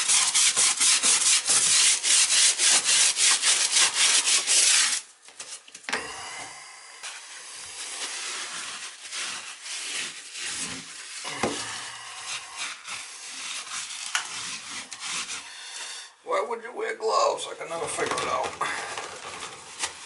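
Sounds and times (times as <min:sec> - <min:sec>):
scraping on a hard surface: 0:07.0 - 0:16.1.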